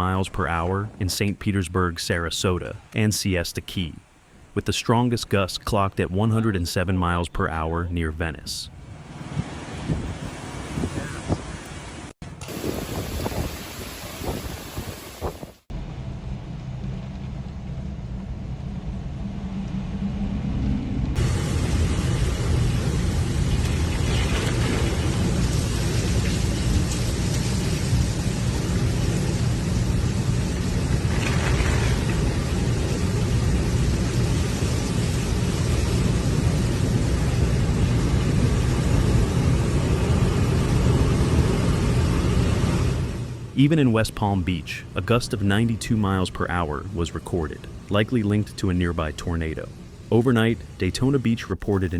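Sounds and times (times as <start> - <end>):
hurricane wind on microphone: 8.8 - 43.6
heavy rain hissing: 9.0 - 15.7, 21.2 - 51.9.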